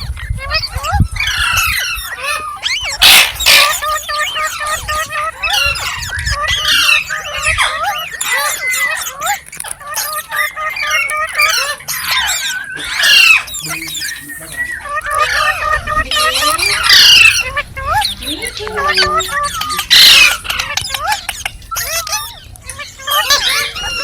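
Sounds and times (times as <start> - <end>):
parrot chattering: 0.4 - 24.0
parrot screech: 0.6 - 4.8.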